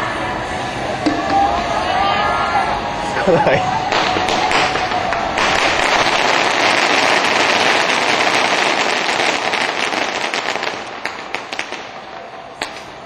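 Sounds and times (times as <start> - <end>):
firecrackers crackling and popping: 3.3 - 13.0.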